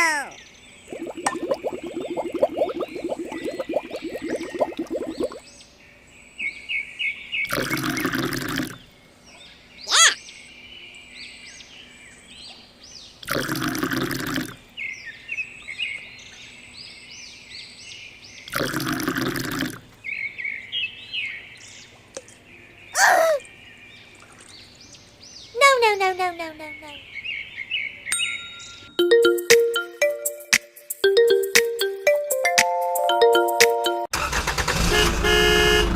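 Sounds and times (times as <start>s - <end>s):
small birds chirping: 0.0s - 13.4s, 14.3s - 29.0s.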